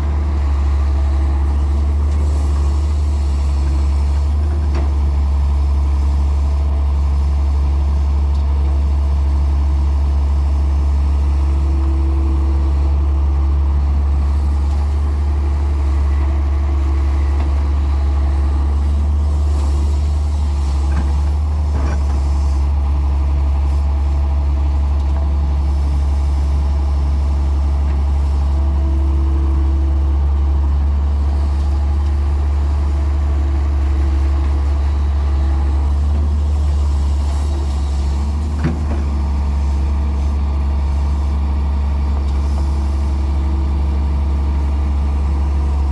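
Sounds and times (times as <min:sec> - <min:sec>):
diesel engine humming: 0:11.1 - 0:45.9.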